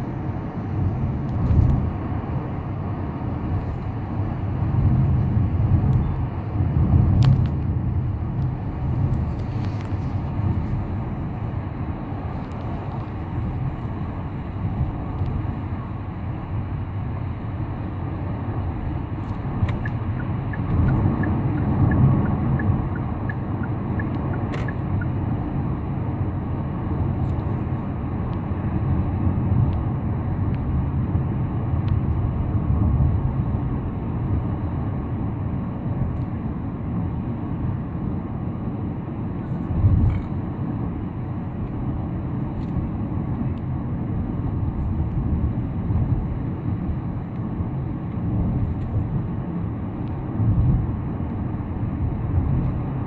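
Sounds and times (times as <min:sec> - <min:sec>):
car tyres and engine rumble: 0:00.0 - 0:53.0.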